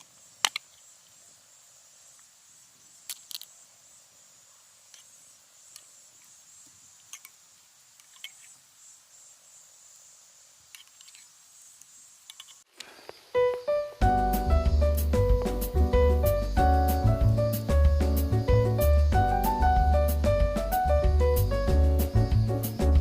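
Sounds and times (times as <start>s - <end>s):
sharp clicks and pops: 0.0s - 0.8s
insect chirring: 0.0s - 23.0s
piano music: 13.4s - 23.0s.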